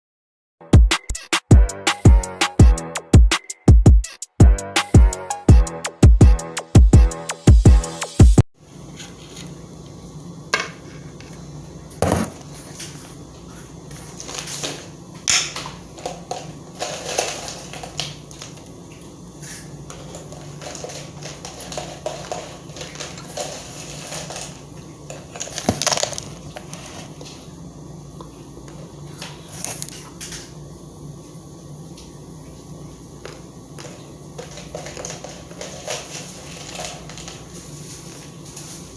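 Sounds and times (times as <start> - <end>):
crinkling and rustling: 12.2 - 14.9, 15.6 - 18.6, 19.4 - 27.5, 33.3 - 38.9.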